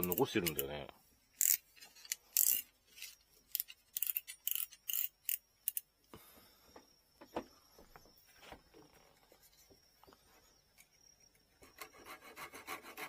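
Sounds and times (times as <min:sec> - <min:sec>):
scraping strokes on bamboo: 0:11.6 - 0:13.0.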